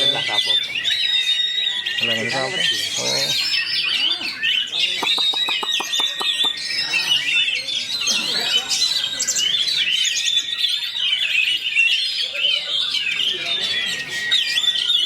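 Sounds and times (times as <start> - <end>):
bird warbling song: 0.0 - 15.0.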